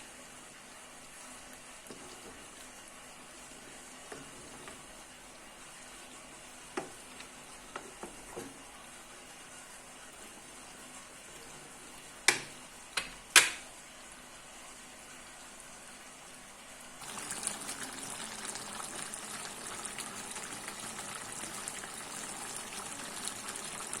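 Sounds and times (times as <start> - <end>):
cooking crackling hiss: 17.0 - 24.0.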